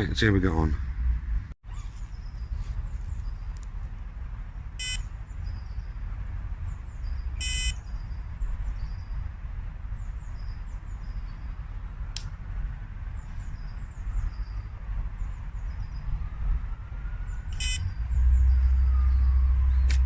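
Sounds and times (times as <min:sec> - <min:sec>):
wind rumbling on microphone: 0:00.0 - 0:20.0
faint high bird chirps: 0:01.6 - 0:03.5
short buzzing beeps: 0:07.4 - 0:07.8.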